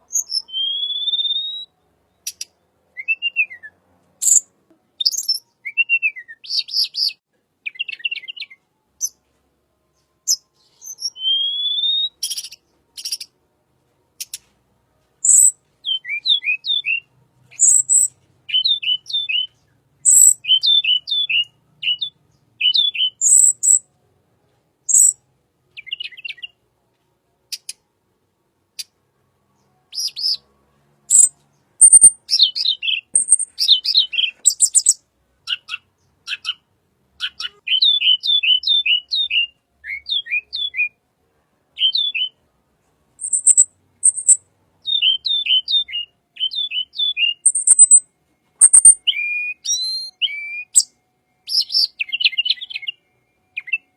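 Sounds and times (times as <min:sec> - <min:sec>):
songbird chirping: 0:00.0 - 0:53.9
thin very high bird notes: 0:47.3 - 0:52.0.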